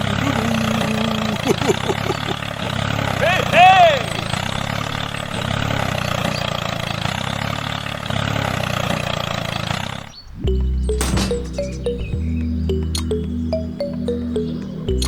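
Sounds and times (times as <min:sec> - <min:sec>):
mini tractor engine idling: 0:00.0 - 0:15.0
music: 0:10.4 - 0:15.0.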